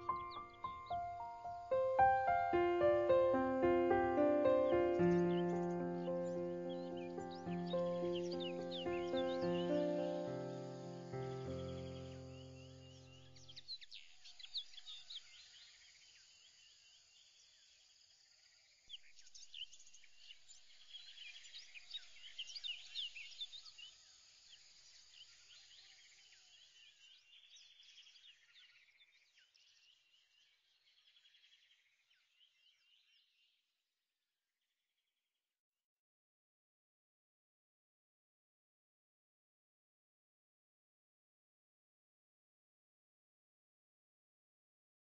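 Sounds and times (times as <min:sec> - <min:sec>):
faint bird chirping: 0:00.0 - 0:33.6.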